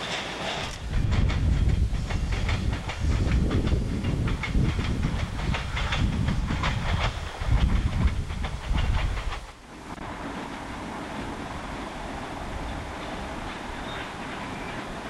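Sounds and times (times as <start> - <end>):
wheel clicks over rail joints: 0.0 - 9.6
train rumbling on rails: 0.0 - 15.0.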